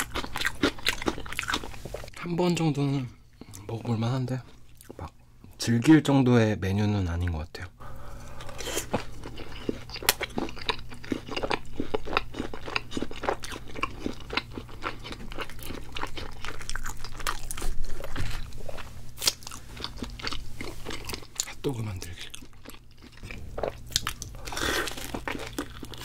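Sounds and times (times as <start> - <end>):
crunching and chewing crispy food: 0.0 - 2.1, 8.1 - 26.0.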